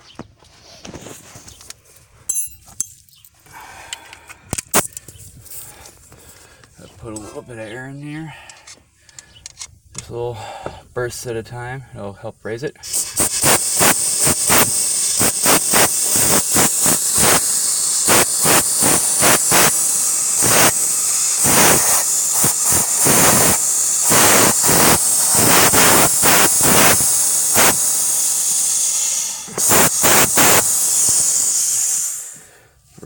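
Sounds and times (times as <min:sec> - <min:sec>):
compressed air hissing from air gun: 0:12.8 - 0:32.7.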